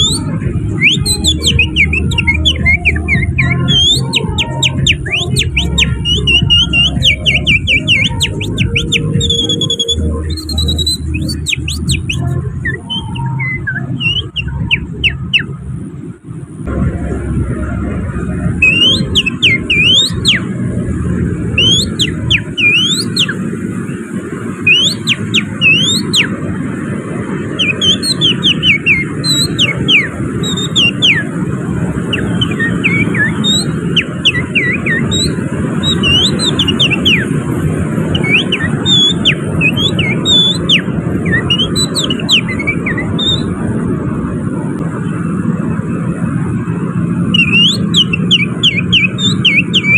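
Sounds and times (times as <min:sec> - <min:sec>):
person whistling birdsong: 0:00.0 - 0:15.6, 0:18.5 - 0:20.6, 0:21.5 - 0:23.4, 0:24.7 - 0:26.4, 0:27.6 - 0:31.4, 0:32.0 - 0:37.4, 0:38.1 - 0:43.5, 0:47.3 - 0:49.9
traffic rumble: 0:00.0 - 0:49.9.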